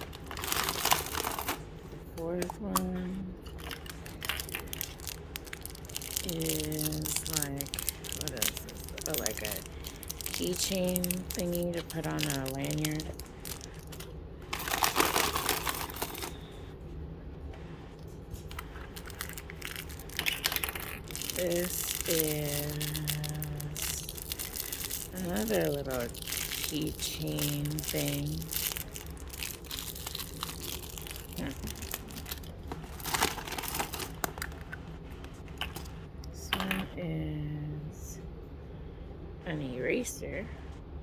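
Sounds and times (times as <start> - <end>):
packaging crinkling and rustling: 0.0 - 16.7, 17.9 - 36.0
faint crackles and clicks: 3.4 - 16.6, 17.6 - 36.1.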